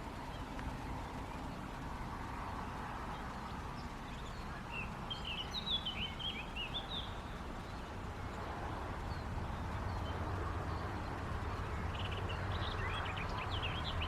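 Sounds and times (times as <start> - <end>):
river water rushing: 0.0 - 14.0
small bird twittering: 3.0 - 8.0.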